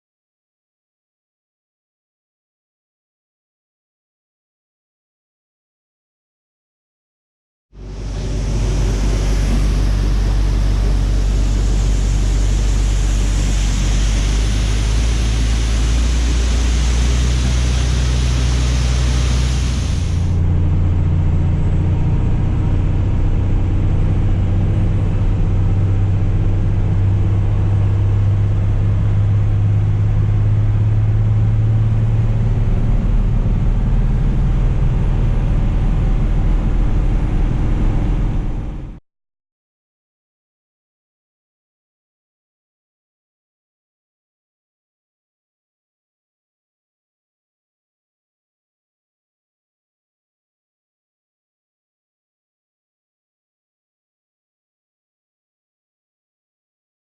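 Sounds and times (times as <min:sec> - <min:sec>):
loud hiss: 0:07.8 - 0:20.4
harvest machinery engine hum: 0:07.8 - 0:38.9.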